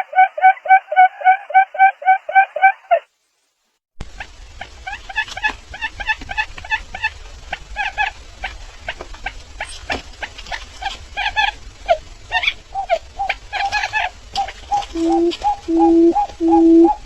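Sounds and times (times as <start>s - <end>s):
bird sharp clicks: 7.8s - 17.0s
bird squeaky chirping: 9.6s - 17.0s.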